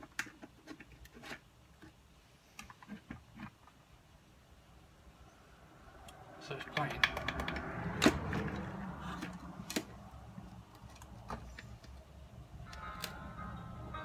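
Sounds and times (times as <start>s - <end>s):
clicks and knocks of handling: 0.0s - 3.8s, 6.6s - 12.1s.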